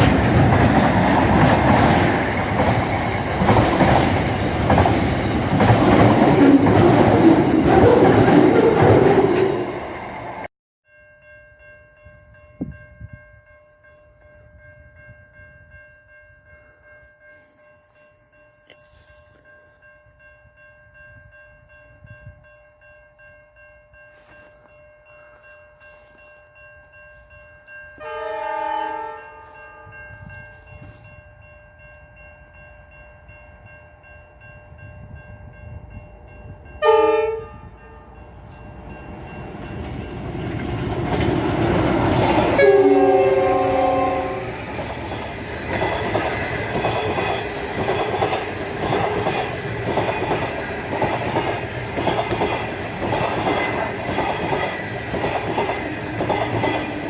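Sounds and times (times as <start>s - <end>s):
train rumble: 0.0s - 10.5s, 11.6s - 57.0s
train horn: 28.0s - 30.3s, 36.8s - 38.4s, 41.9s - 44.8s.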